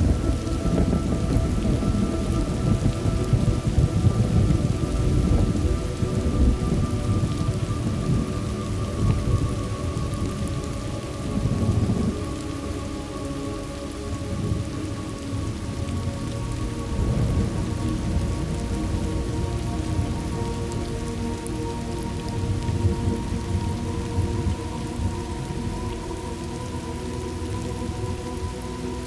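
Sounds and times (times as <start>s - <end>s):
rolling thunder: 0.0s - 12.5s, 15.6s - 26.0s
steady rain falling: 0.0s - 29.0s.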